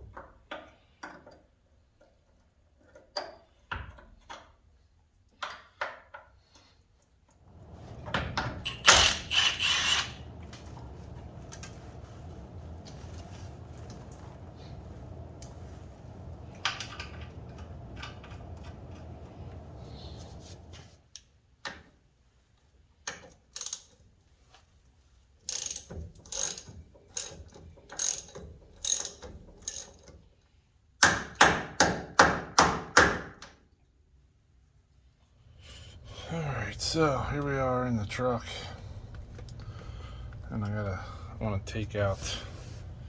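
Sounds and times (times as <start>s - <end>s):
ratchet wrench clicking: 25.5s - 30.0s
low rumble: 35.5s - 43.0s.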